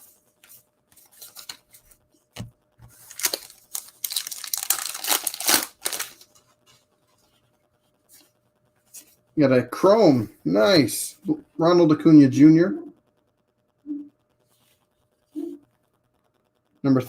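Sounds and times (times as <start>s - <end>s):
foil wrapper tearing and crinkling: 2.9s - 6.4s.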